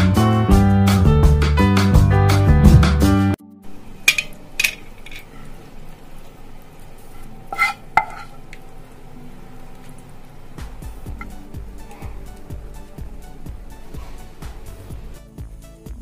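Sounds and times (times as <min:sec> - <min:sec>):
intro music: 0:00.0 - 0:04.7, 0:09.1 - 0:16.0
low steady background: 0:03.5 - 0:15.3
metal utensil clinking on plate: 0:04.0 - 0:05.4, 0:07.5 - 0:08.6.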